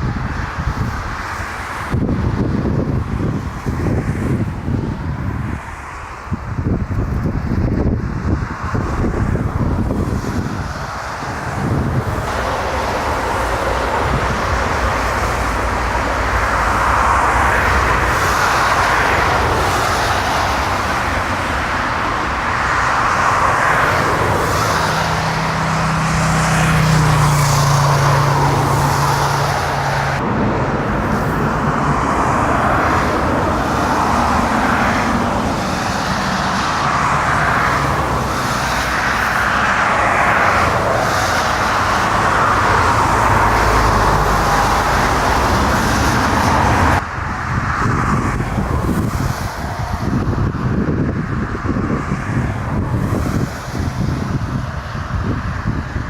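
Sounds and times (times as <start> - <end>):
jet engine rushing: 6.4 - 50.5.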